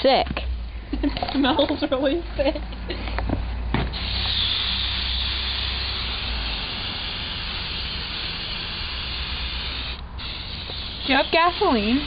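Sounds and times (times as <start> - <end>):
aerosol can spraying hiss: 3.9 - 12.0.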